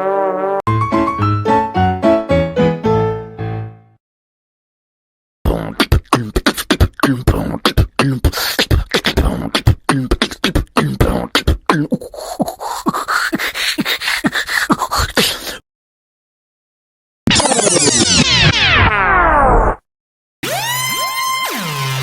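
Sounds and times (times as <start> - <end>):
beatbox vocal pops and clicks: 5.4 - 15.4.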